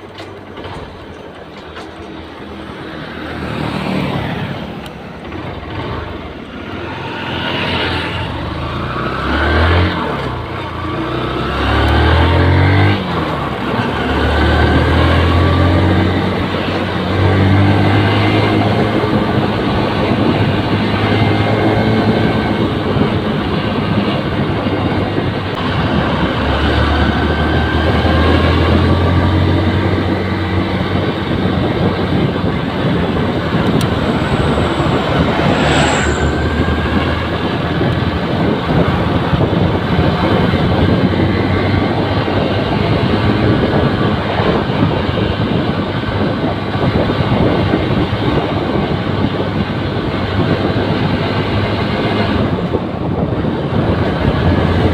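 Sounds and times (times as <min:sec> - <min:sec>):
wind and road noise: 0:00.0 - 0:54.9
brief high-pitched sound: 0:33.1 - 0:38.1.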